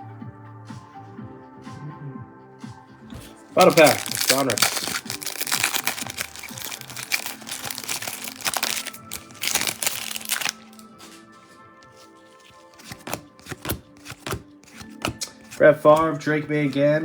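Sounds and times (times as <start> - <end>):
background music: 0.0 - 17.0
foil wrapper crinkling: 3.2 - 11.3, 11.9 - 15.6.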